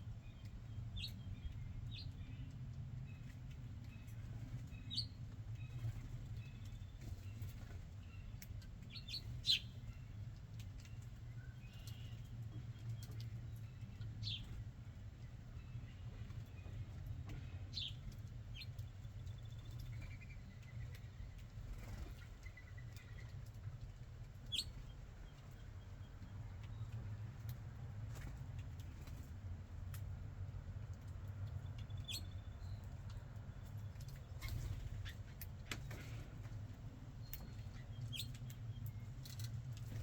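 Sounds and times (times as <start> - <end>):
birds chirping: 0.1 - 29.3, 31.0 - 40.0.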